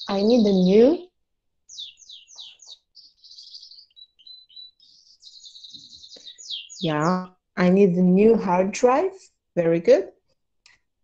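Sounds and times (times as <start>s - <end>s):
bird chirping: 0.0s - 9.4s
person speaking: 6.8s - 10.2s.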